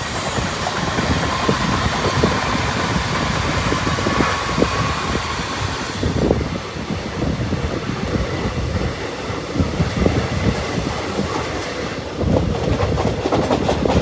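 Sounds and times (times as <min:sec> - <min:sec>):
train wheels clattering: 0:00.0 - 0:06.4, 0:08.0 - 0:14.0
train rumbling on rails: 0:00.0 - 0:14.0.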